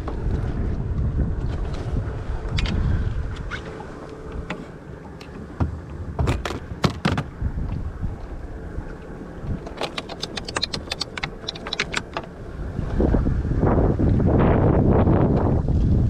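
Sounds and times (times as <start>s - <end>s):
wind rumbling on microphone: 0.0s - 16.0s
clicks and knocks of gear: 4.3s - 7.8s, 8.9s - 12.4s.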